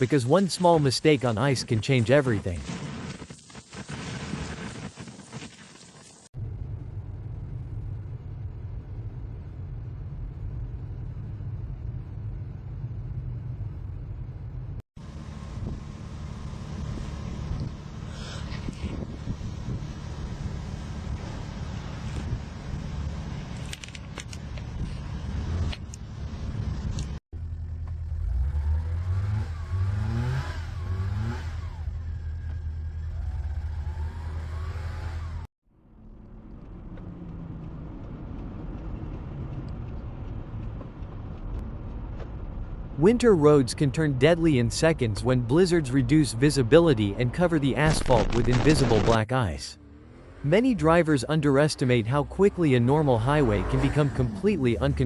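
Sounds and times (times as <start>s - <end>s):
motor vehicle rumbling on road: 6.4s - 55.0s
car engine revving: 25.2s - 39.8s, 49.8s - 55.0s.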